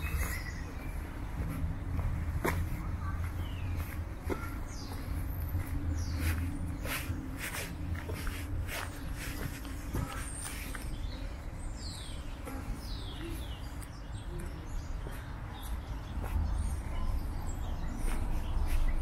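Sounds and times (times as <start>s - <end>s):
birds whistling and chirping: 0.0s - 1.6s
steady low rumble: 0.0s - 19.0s.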